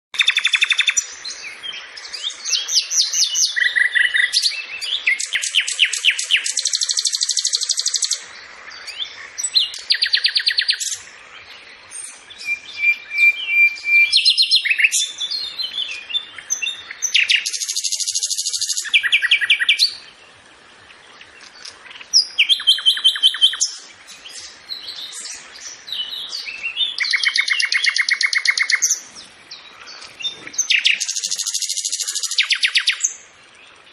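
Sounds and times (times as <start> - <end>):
songbirds trilling: 0.2 - 33.9
bird whistle: 12.4 - 15.4.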